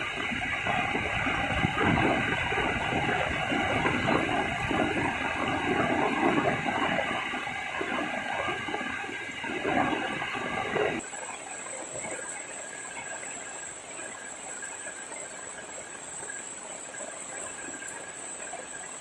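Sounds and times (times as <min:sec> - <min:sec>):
heavy rain pouring: 0:00.0 - 0:11.0
water rushing and splashing: 0:00.0 - 0:19.0.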